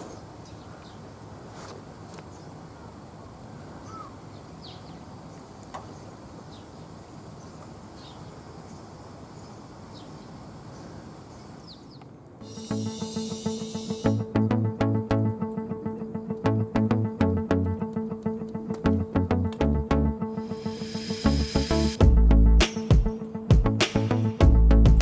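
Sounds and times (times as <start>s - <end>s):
bird chirps: 3.7s - 6.8s.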